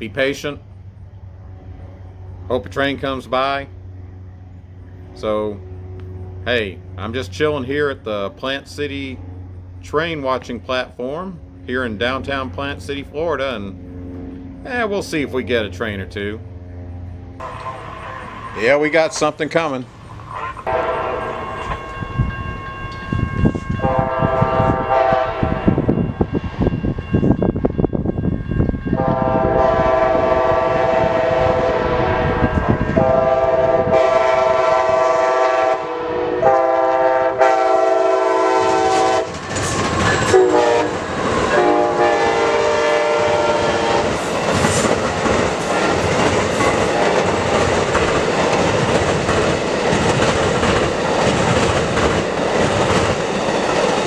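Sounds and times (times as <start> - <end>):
train cars rumbling past: 0.0 - 54.0
locomotive air horn blasts: 20.4 - 27.1, 28.5 - 39.4, 40.2 - 44.2
wheels clacking over rail joints: 38.6 - 54.0.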